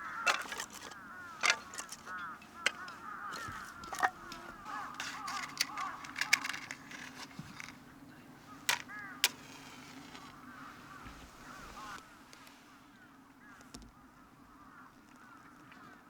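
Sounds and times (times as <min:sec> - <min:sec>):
sharp cracks: 0:00.0 - 0:07.8
birds calling in short notes: 0:00.0 - 0:12.1.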